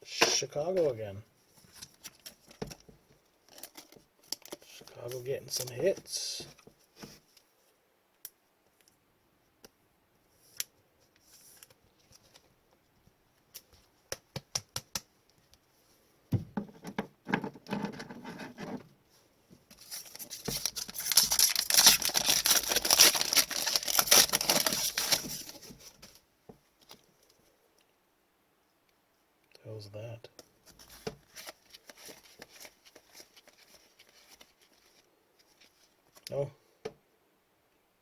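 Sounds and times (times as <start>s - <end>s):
wrapper rustling and tearing: 3.4s - 4.9s, 19.8s - 26.2s, 30.7s - 36.3s.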